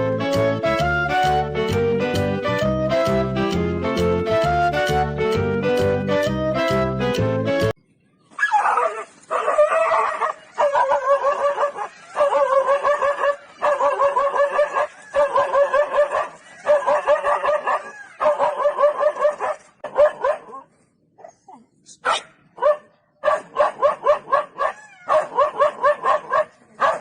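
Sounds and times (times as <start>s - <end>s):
dog crying: 8.4s - 19.5s, 24.3s - 27.0s.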